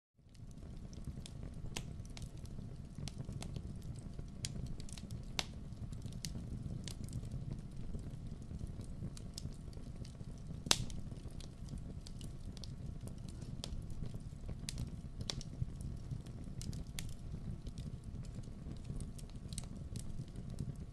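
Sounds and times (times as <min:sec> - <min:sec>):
fire crackles and pops: 0:00.2 - 0:20.9
low rumble of flames: 0:00.2 - 0:20.9.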